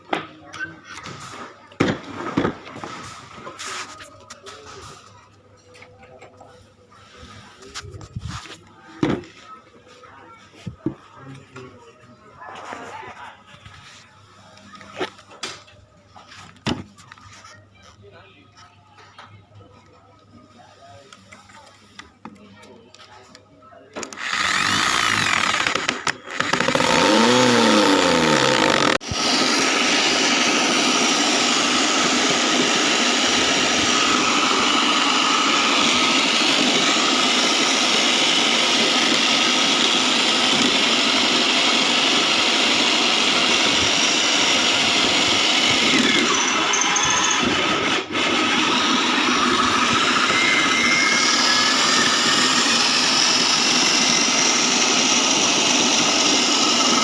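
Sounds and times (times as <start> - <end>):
shredding machine whirring: 24.0 - 57.0.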